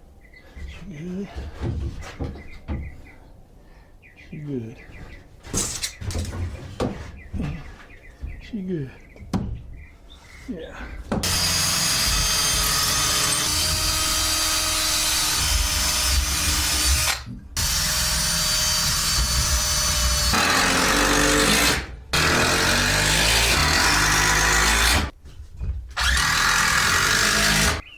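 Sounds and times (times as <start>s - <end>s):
power drill driving screws into wood: 11.2s - 25.1s, 26.0s - 27.8s.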